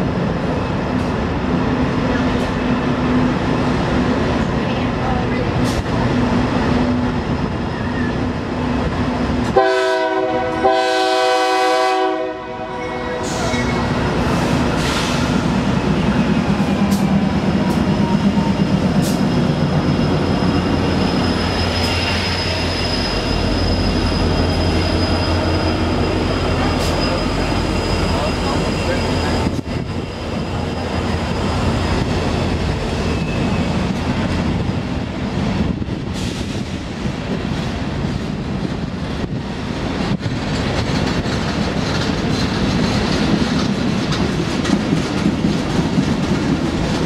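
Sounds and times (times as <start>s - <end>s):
locomotive air horn: 9.5s - 13.8s
train wheel clicks: 40.0s - 47.0s.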